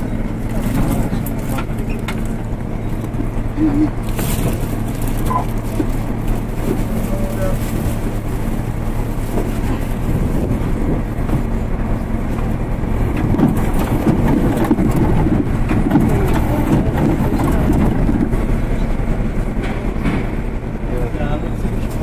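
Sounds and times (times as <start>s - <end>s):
low hum: 0.0s - 22.0s
steel wheels rumbling on rail: 0.0s - 22.0s.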